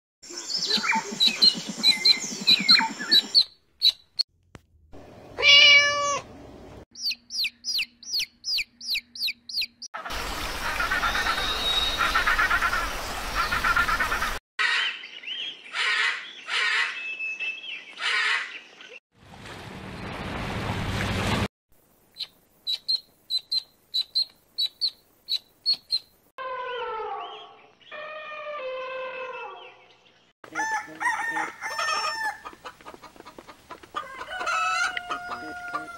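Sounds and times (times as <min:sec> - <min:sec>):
birds chirping and peeping: 0:00.2 - 0:04.2, 0:06.9 - 0:19.0, 0:22.2 - 0:28.5, 0:29.2 - 0:30.3
rising drawn-out bird call: 0:10.6 - 0:13.5
high peeps: 0:22.2 - 0:26.1.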